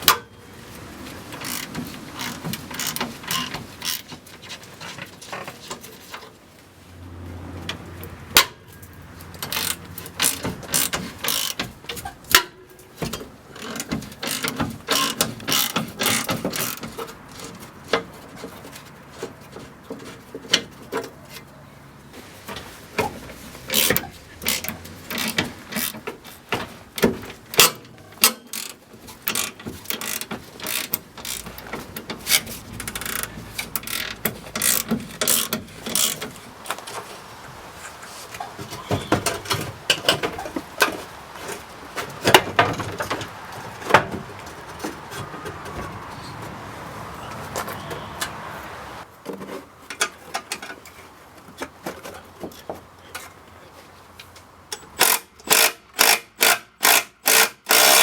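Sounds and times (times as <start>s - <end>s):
ratchet wrench clicking: 9.4s - 11.6s, 13.6s - 16.8s, 23.7s - 26.0s, 27.5s - 36.2s, 54.8s - 58.0s
metallic knocks: 38.5s - 46.6s.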